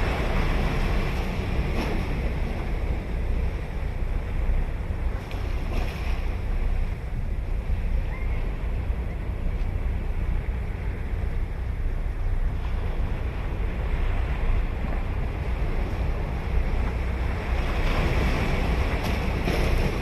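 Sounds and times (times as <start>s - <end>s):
ocean surf breaking on beach: 0.0s - 3.5s, 17.0s - 20.0s
wind rumble on microphone: 0.0s - 20.0s.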